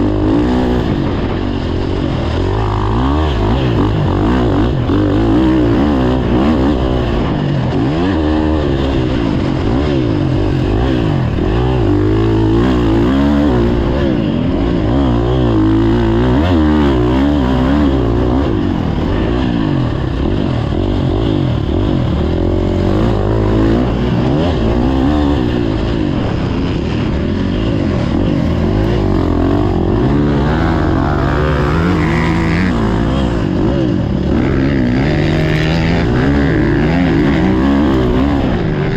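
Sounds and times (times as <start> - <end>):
dirt bike engines revving: 0.0 - 38.9.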